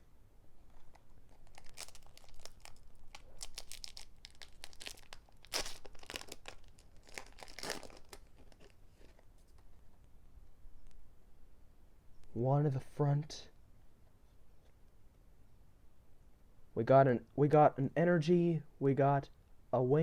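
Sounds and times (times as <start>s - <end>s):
foil wrapper tearing and crinkling: 0.7s - 9.2s.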